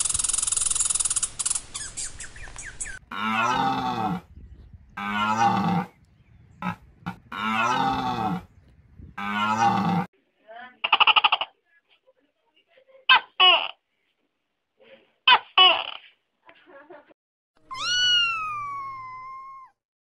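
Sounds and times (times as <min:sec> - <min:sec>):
cow mooing: 0:03.1 - 0:04.4, 0:05.0 - 0:06.0, 0:06.6 - 0:08.6, 0:09.2 - 0:10.1.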